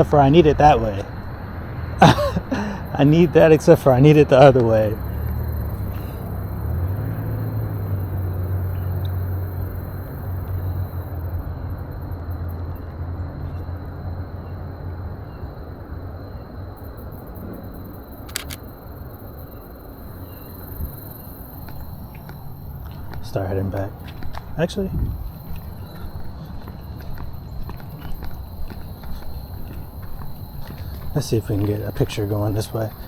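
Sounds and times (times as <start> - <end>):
vehicle engine rumble: 0.0 - 33.0
sharp clicks: 18.2 - 18.7.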